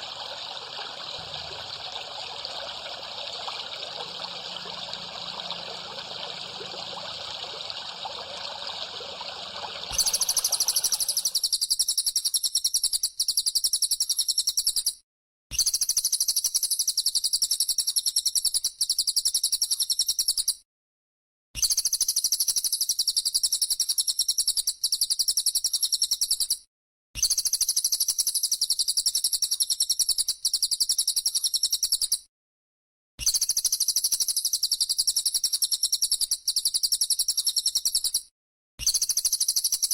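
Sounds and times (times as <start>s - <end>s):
high rapidly pulsing call: 0.0s - 11.4s
water trickling: 0.0s - 11.4s.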